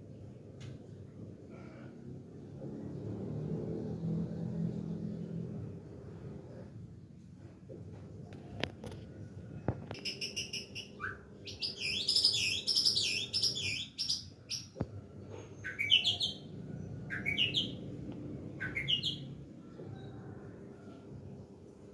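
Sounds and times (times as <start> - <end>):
songbird singing: 9.9 - 14.9, 15.5 - 20.2.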